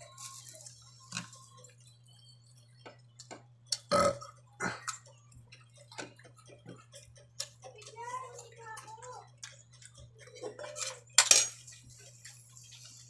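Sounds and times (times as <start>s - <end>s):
steady low hum: 0.0s - 13.0s
person burping: 3.8s - 5.0s.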